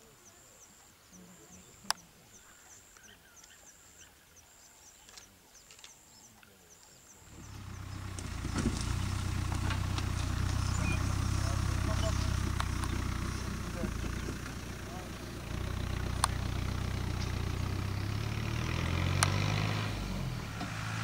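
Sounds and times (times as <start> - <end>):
bush ambience: 0.0 - 21.0
vehicle engine humming: 7.2 - 21.0
sharp click: 19.2 - 19.4.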